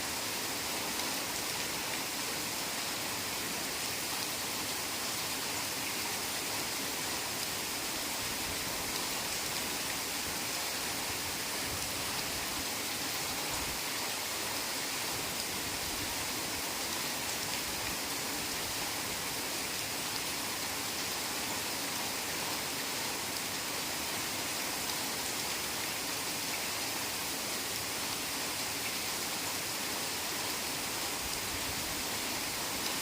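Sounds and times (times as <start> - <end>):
heavy rain in forest: 0.0 - 33.0.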